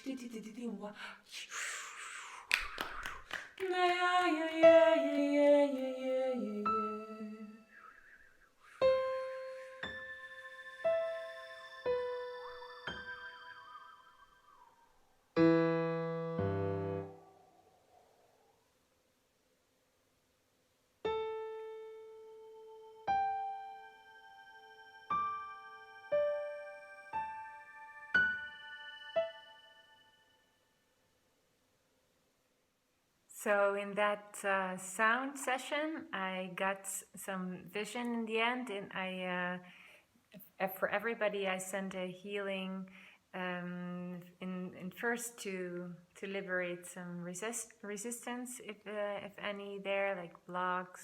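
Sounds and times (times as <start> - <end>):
woman singing wordless tone: 0.0 - 7.8.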